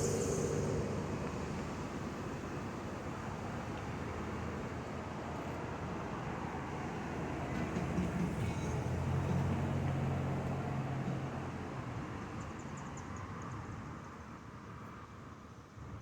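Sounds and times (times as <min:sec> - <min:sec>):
vehicle engine hum: 0:00.0 - 0:04.6.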